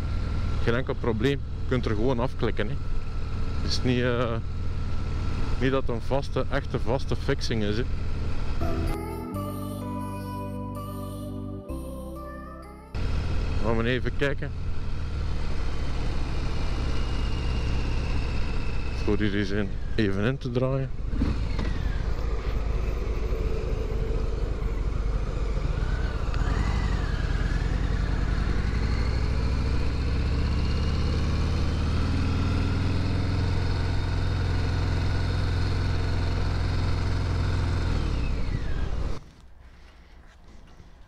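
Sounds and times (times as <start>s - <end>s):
motorcycle engine accelerating: 13.0s - 20.1s, 20.9s - 39.2s.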